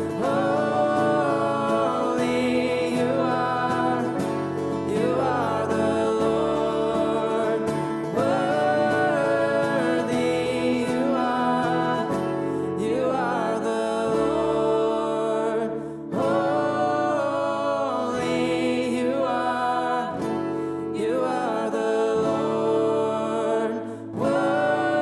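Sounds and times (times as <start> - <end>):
worship music on acoustic guitar: 0.0 - 25.0.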